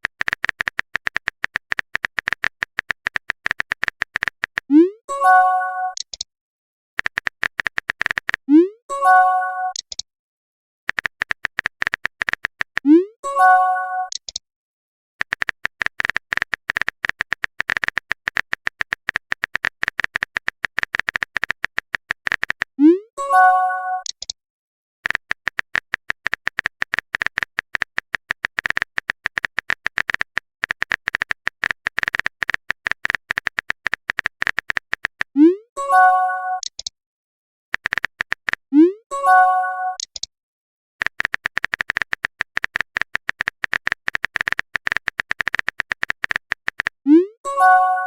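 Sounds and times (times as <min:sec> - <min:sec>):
rapid typing clicks: 0:00.0 - 0:04.7, 0:07.0 - 0:08.5, 0:10.9 - 0:13.0, 0:15.2 - 0:22.8, 0:25.0 - 0:35.4, 0:37.8 - 0:38.7, 0:41.0 - 0:47.0
message chime: 0:05.1 - 0:06.0, 0:08.9 - 0:09.8, 0:35.8 - 0:36.6, 0:39.1 - 0:40.0, 0:47.5 - 0:48.0.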